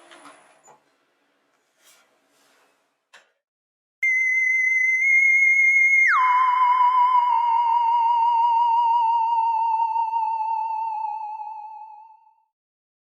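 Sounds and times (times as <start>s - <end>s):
high electronic tone: 4.0s - 12.2s.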